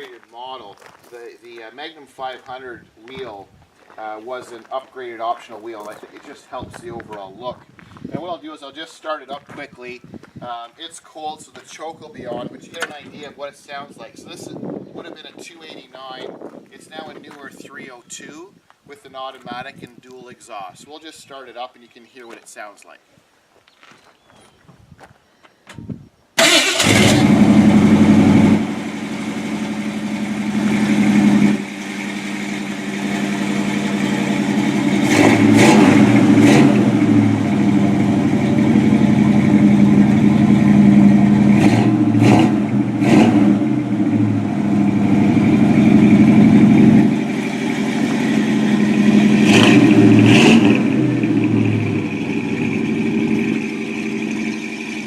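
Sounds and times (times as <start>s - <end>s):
car engine idling and revving: 26.4s - 55.0s
car engine starting: 26.4s - 55.0s.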